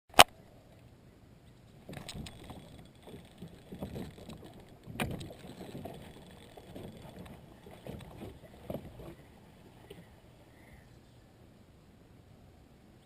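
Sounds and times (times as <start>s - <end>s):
knocks and bumps in a boat: 1.8s - 9.2s.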